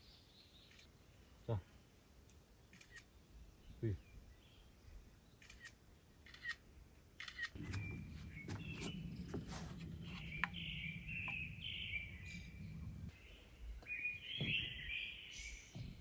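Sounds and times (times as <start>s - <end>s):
low steady rumble: 7.6s - 13.8s
birds chirping: 7.6s - 16.0s.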